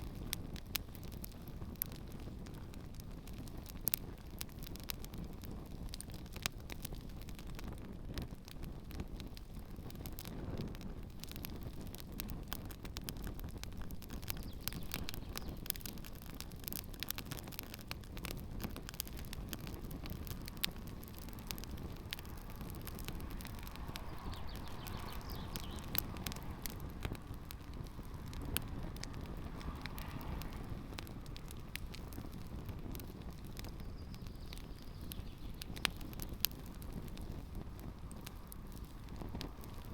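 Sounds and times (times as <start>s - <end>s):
campfire crackling and popping: 0.0s - 39.9s
low rumble of flames: 0.0s - 39.9s.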